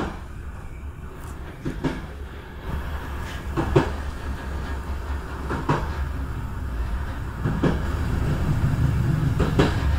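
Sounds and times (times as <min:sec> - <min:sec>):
train rumbling on track: 0:00.0 - 0:09.9
wheels clicking over rail joints: 0:07.4 - 0:09.9.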